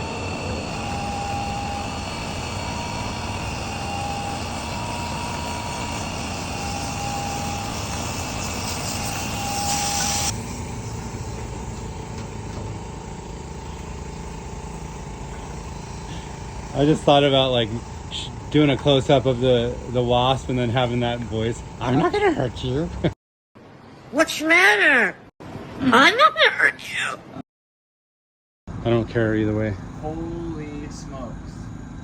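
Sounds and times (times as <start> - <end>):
machine motor whining: 0.0 - 23.1.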